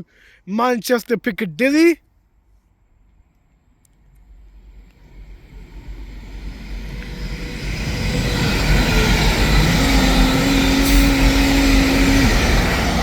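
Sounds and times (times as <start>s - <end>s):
train passing at speed: 2.9s - 13.0s
wheels on rails: 3.3s - 13.0s
steady engine tone: 4.0s - 13.0s.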